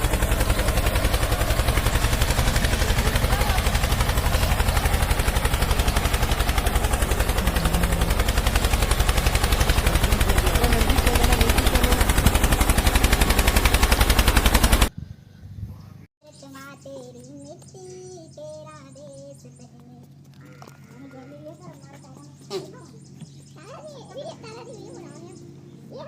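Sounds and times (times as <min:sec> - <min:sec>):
tractor engine chugging: 0:00.0 - 0:14.9.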